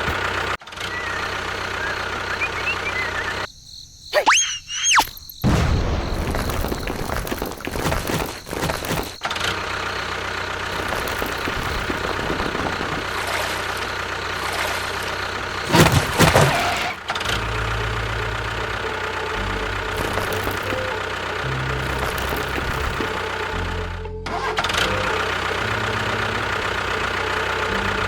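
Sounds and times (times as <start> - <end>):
small engine running: 0.0 - 3.5, 7.7 - 28.0.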